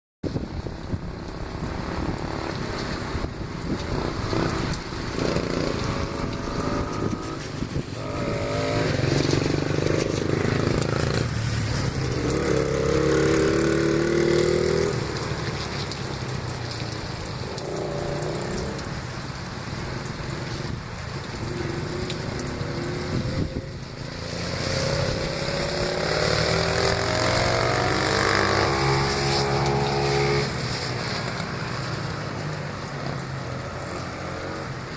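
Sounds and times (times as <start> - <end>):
dirt bike engine revving: 4.0 - 15.0, 22.6 - 30.5.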